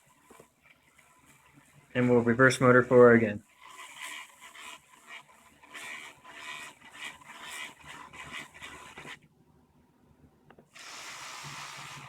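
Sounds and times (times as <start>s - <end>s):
quadcopter motors whining: 10.8s - 12.0s.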